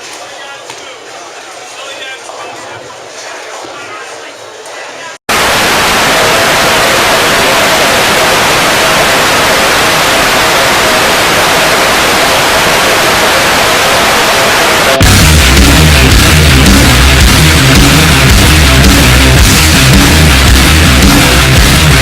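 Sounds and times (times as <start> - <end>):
heavy metal music: 5.3 - 22.0
loud static hiss: 5.3 - 22.0.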